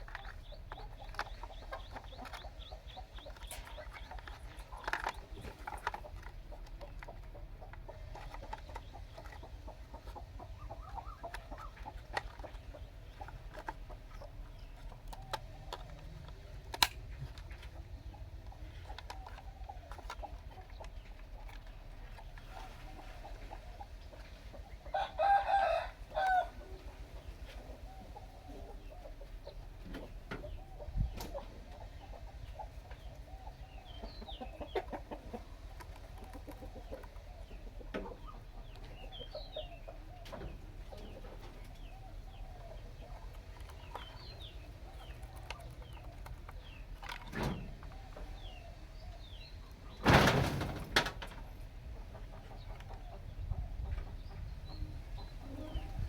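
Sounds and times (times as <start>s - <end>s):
faint clicks and ticks: 0.0s - 22.5s.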